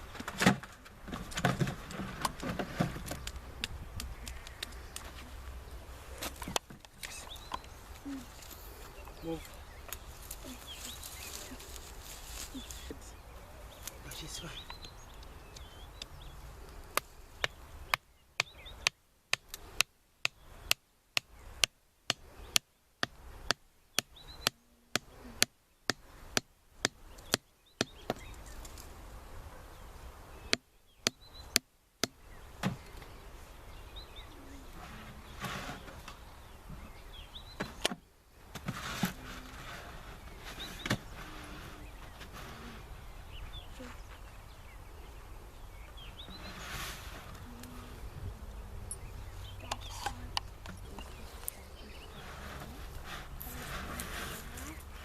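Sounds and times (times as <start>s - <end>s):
faint bird chirps: 3.1s - 18.9s, 32.2s - 38.4s, 39.2s - 53.7s
wood being chopped: 17.0s - 28.4s, 30.5s - 32.8s.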